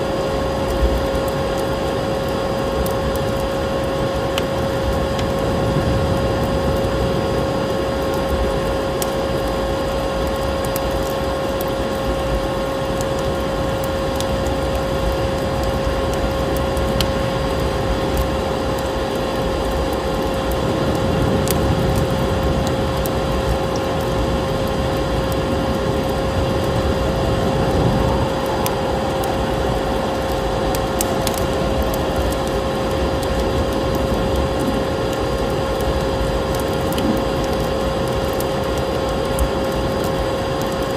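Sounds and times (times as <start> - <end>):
fire crackling and popping: 0.0 - 40.9
storm wind rushing: 3.8 - 8.9, 20.2 - 40.4
vacuum cleaner motor whine: 24.2 - 35.6.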